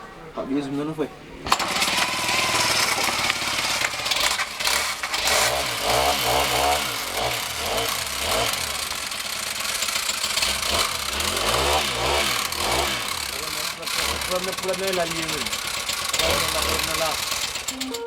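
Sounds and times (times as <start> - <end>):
string trimmer engine revving: 1.5 - 18.0.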